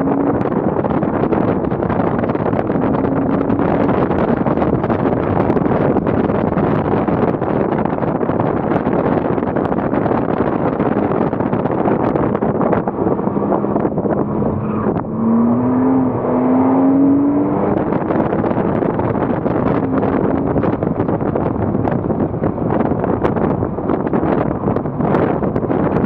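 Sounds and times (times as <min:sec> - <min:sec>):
car engine revving: 0:00.0 - 0:26.0
wind and road noise: 0:00.0 - 0:26.0.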